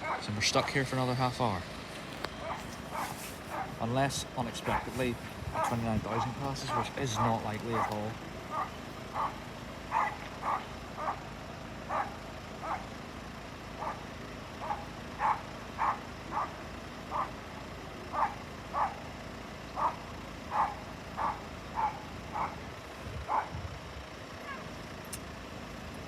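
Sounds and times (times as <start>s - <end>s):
dog barking: 0.0s - 0.8s, 2.4s - 3.8s, 4.6s - 11.3s, 11.9s - 12.9s, 13.8s - 17.4s, 18.1s - 19.0s, 19.8s - 23.6s
steady background hum: 0.0s - 26.0s.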